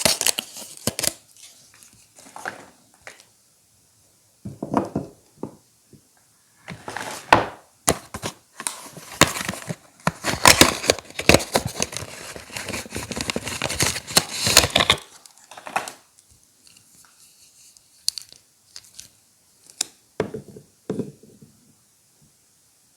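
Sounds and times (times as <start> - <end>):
wrapper tearing and crinkling: 0.0 - 1.6, 9.2 - 16.0.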